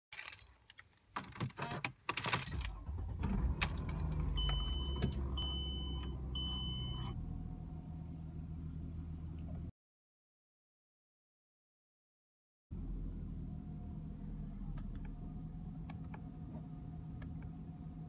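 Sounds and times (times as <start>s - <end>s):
key rattling in ignition: 0.2s - 5.4s
car engine starting and idling: 2.4s - 9.7s, 12.7s - 18.0s.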